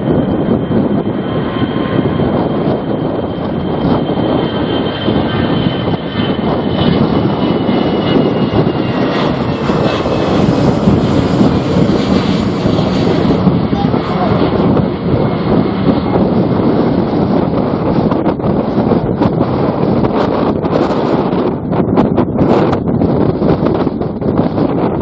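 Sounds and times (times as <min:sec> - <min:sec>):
high engine whine: 0:00.0 - 0:19.4
airliner engines rumbling: 0:00.0 - 0:25.0.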